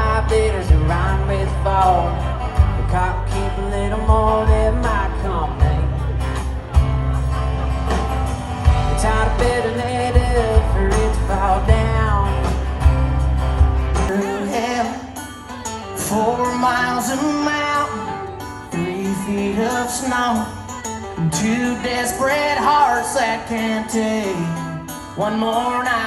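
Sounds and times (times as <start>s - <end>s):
person singing over a band: 0.0s - 12.9s, 14.0s - 26.0s
heavy bass: 0.0s - 14.1s.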